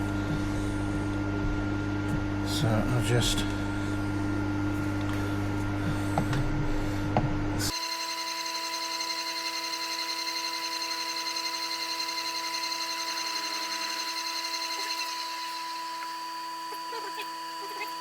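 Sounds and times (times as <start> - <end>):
low hum with clicks: 0.0 - 7.7
milling machine drill whine: 7.6 - 18.0.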